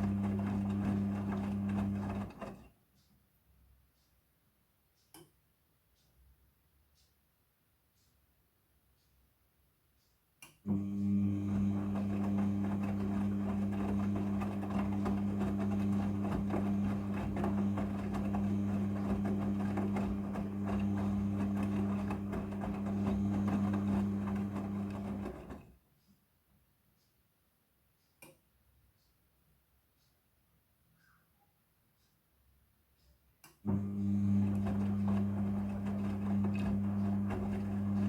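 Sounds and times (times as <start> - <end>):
washing machine motor hum: 0.0 - 2.7, 10.7 - 25.7, 33.7 - 38.0
clothes and water churning: 11.5 - 25.6.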